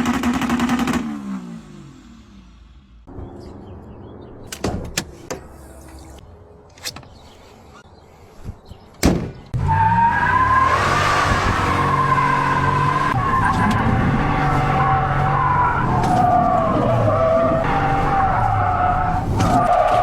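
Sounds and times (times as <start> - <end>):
engine revving hard: 9.6 - 16.0.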